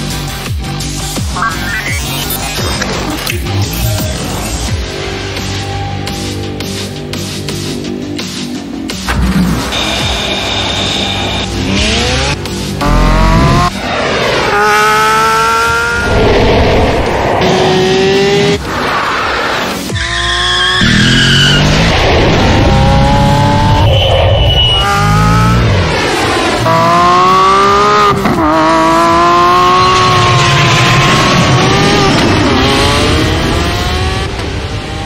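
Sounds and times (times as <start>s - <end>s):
car engine revving hard: 9.7s - 19.8s, 20.7s - 23.9s, 24.7s - 35.0s.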